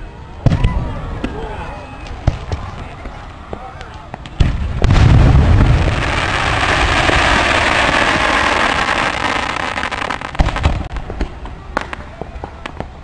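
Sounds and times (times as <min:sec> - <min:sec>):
sharp firework pops: 0:04.2 - 0:06.0, 0:09.2 - 0:12.9
fireworks hissing and crackling: 0:04.2 - 0:13.0.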